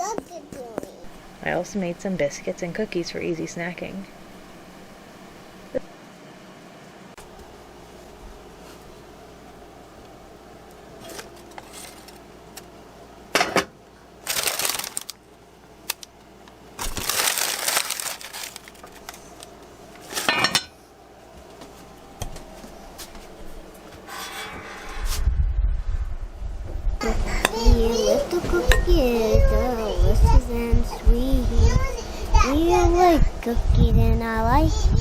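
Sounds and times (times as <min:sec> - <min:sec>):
wrappers rustling: 0:14.2 - 0:15.2, 0:16.8 - 0:20.2
dishes and pans clattering: 0:20.1 - 0:20.7.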